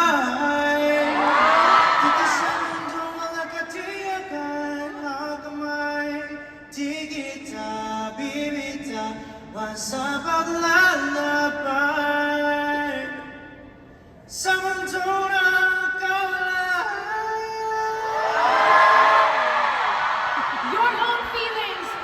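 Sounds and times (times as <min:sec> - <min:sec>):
man singing a slow ballad: 0:00.0 - 0:01.1, 0:02.0 - 0:13.7, 0:14.3 - 0:18.2.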